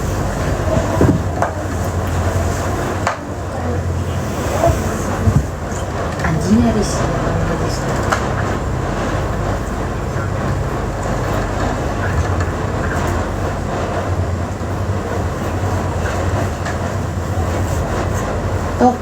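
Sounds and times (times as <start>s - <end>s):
vehicle rumbling: 0.0s - 19.0s.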